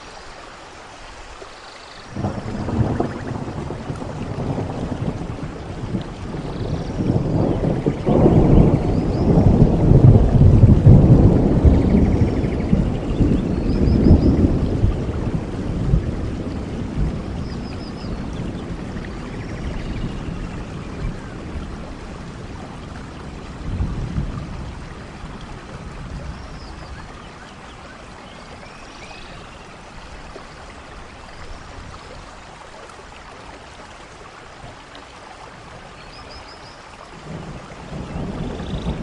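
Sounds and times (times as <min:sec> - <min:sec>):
steady rain: 0:00.0 - 0:39.0
thunder rumbling: 0:02.1 - 0:28.2, 0:37.2 - 0:39.0.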